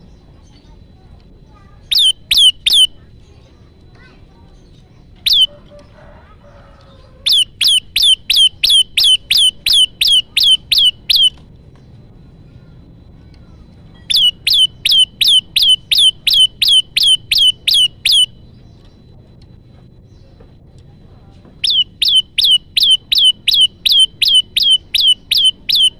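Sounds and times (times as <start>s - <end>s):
bird chip notes: 1.5s - 5.8s, 7.3s - 11.4s, 13.2s - 19.1s, 21.6s - 25.9s.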